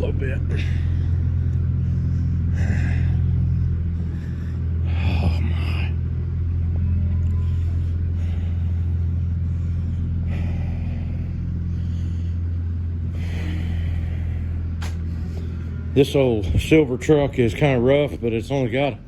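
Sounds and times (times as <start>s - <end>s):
truck engine droning in cab: 0.0s - 19.0s.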